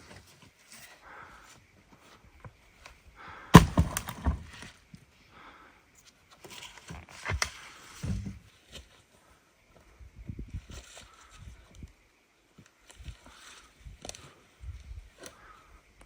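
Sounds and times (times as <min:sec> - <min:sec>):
sharp hard impact: 0:03.6 - 0:04.4
knocks and thuds: 0:03.6 - 0:04.5.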